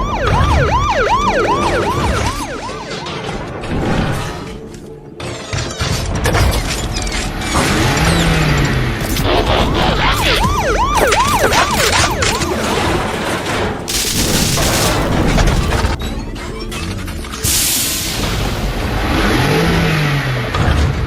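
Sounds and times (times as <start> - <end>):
police siren yelping: 0.0 - 3.6, 9.7 - 15.9.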